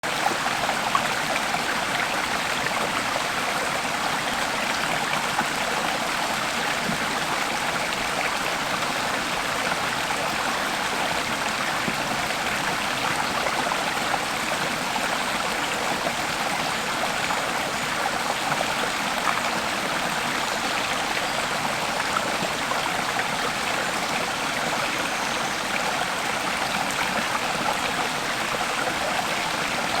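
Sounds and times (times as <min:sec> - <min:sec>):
stream babbling over stones: 0:00.1 - 0:30.0.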